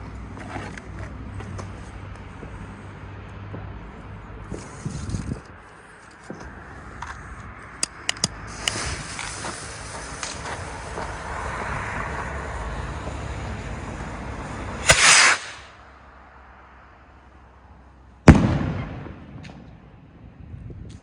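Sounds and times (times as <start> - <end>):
firework fuse hissing: 8.2 - 15.8
loud firework bang: 14.8 - 15.7, 18.3 - 19.8.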